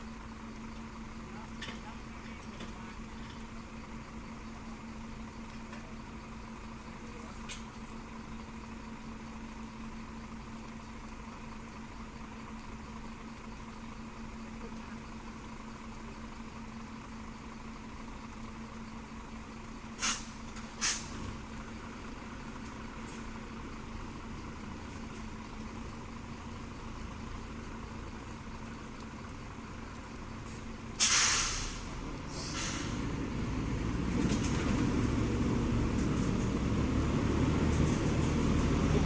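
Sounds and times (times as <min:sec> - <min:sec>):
truck diesel engine idling: 0:00.0 - 0:39.0
air brake hissing: 0:20.0 - 0:21.3, 0:31.0 - 0:33.1.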